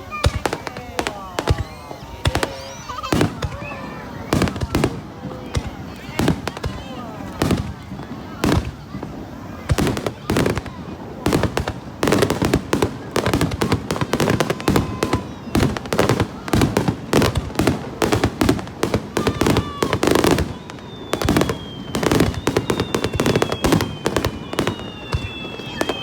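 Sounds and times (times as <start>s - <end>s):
fireworks bangs and crackles: 0.0s - 26.0s
high whistling tone: 20.5s - 26.0s.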